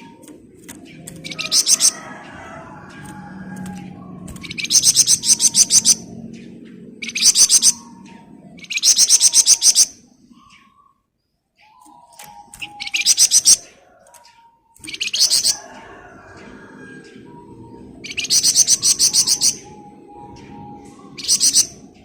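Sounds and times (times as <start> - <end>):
bird rapid trills: 0.0 - 6.1, 8.6 - 10.4, 11.8 - 14.2, 14.8 - 17.2, 18.0 - 19.9, 20.5 - 22.0
quiet whistled bird notes: 7.0 - 22.0.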